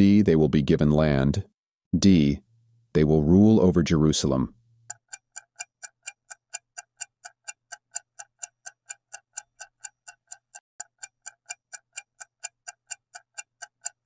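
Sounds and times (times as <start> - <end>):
rapid clock-like ticking: 4.8 - 14.0.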